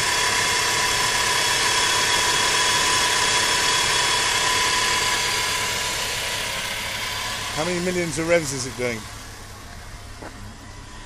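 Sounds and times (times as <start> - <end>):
car engine idling: 0.0 - 11.0
high engine whine: 0.0 - 11.0.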